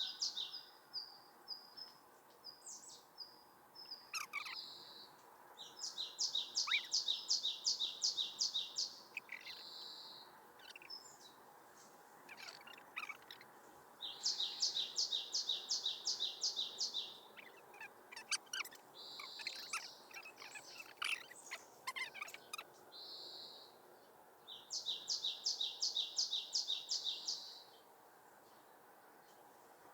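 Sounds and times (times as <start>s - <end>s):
other birds chirping: 0.0s - 23.8s.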